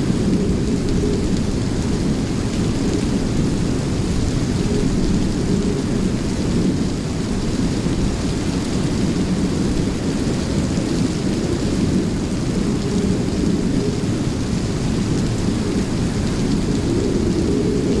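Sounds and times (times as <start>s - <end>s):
heavy rain: 0.0s - 18.0s.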